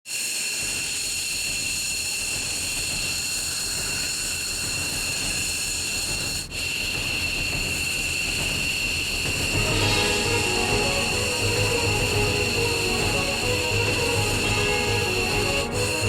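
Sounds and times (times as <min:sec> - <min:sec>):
high-pitched turbine whine: 0:00.1 - 0:16.0
jet engines rushing: 0:06.1 - 0:16.0.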